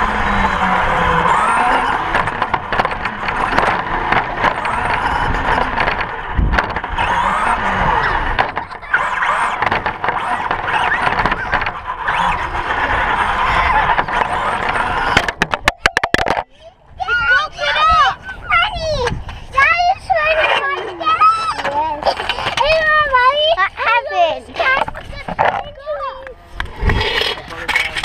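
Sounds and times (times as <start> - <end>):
electric motor whining: 0.0 - 16.2
small tyres on concrete: 0.0 - 16.6, 19.1 - 28.0.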